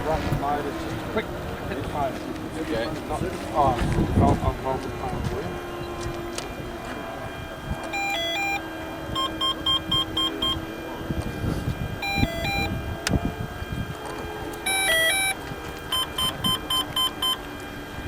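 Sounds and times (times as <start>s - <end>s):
electronic arming beeps: 6.6s - 10.8s, 11.9s - 13.0s, 14.6s - 17.5s.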